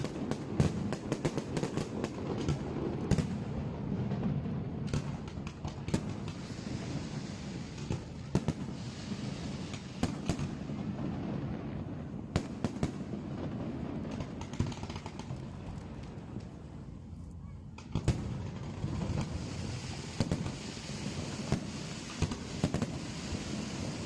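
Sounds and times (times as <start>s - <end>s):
fireworks bangs and pops: 0.0s - 16.9s, 17.7s - 24.0s.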